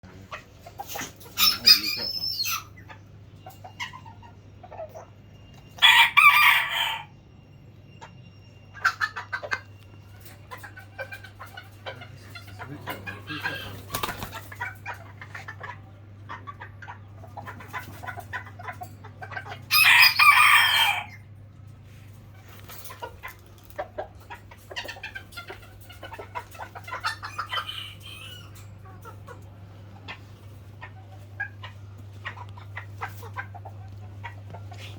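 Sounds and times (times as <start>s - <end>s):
chickens clucking: 0.0s - 7.2s, 7.9s - 34.9s
rooster crowing: 5.8s - 7.1s, 19.7s - 21.2s.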